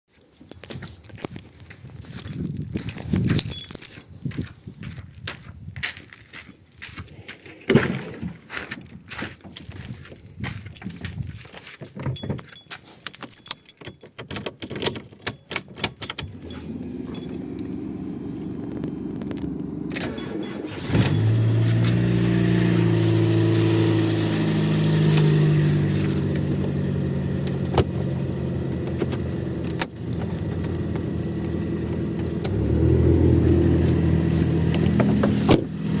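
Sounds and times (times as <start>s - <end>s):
keys jangling: 2.1s - 4.4s, 10.6s - 18.8s, 20.0s - 22.0s
car engine cranking: 12.0s - 36.0s
car engine idling: 16.4s - 36.0s.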